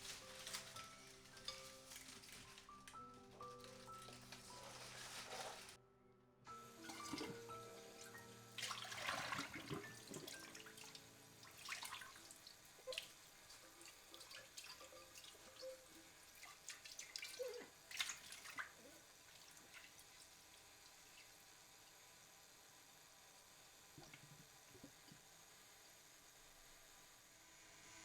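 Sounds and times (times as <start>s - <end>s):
water splashing and dripping: 8.0s - 20.1s.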